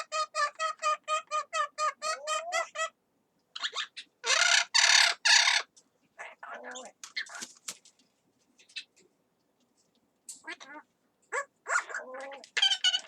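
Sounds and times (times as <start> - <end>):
parrot squawking: 0.0 - 3.0, 3.6 - 7.4, 10.4 - 13.0.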